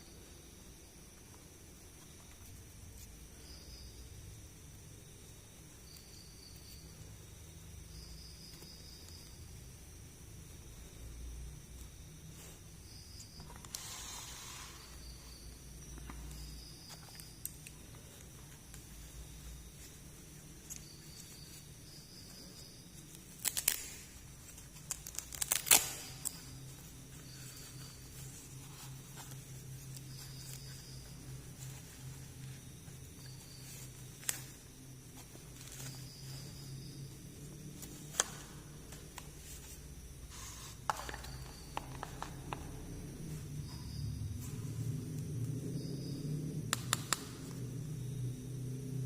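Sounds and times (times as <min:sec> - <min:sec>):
plastic packaging crackling: 0:23.4 - 0:26.6.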